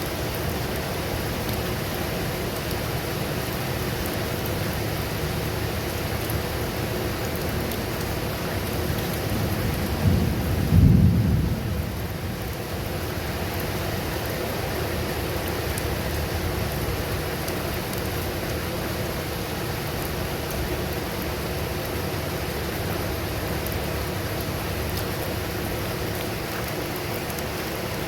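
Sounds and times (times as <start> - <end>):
steady rain: 0.0 - 28.0
thunder rumbling: 9.2 - 12.6.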